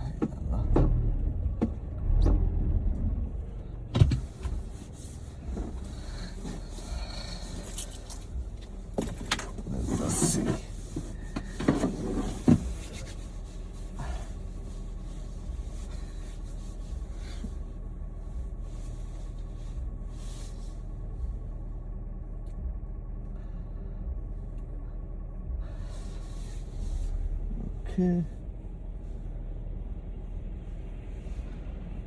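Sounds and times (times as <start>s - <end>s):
car engine low rumble: 0.0s - 32.0s.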